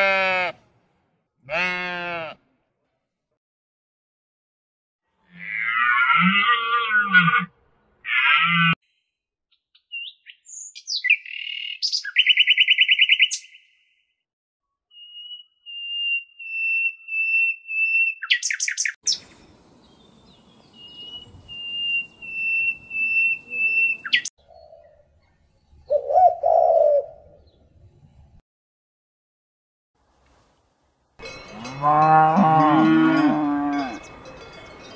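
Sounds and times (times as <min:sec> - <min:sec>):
pigeon cooing: 0:25.9 - 0:27.4.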